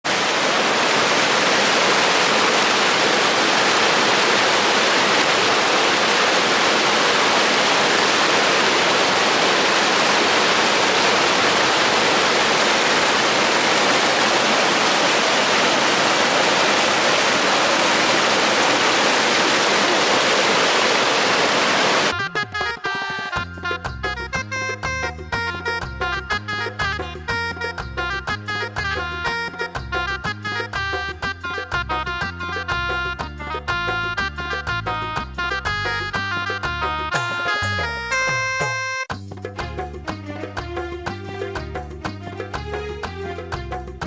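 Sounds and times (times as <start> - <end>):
loud rushing water: 0.0 - 22.1.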